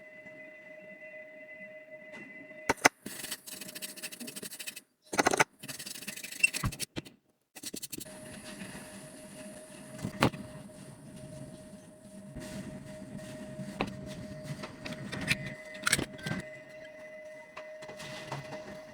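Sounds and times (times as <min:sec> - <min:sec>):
faint steady tone: 0:00.0 - 0:03.8.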